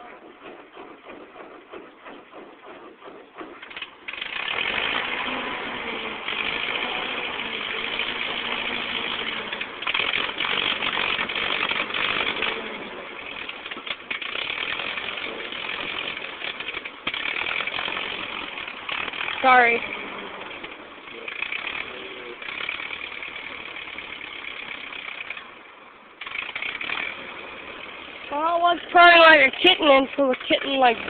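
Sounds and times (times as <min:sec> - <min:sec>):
tractor engine starting and running: 0:00.0 - 0:31.0.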